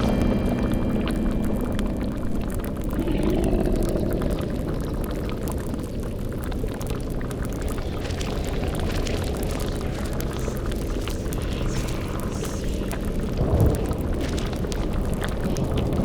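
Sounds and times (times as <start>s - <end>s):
eerie tone: 0.0s - 5.8s
cauldron bubbling: 0.0s - 16.0s
fire crackling: 0.0s - 16.0s
low rumble: 0.0s - 16.0s.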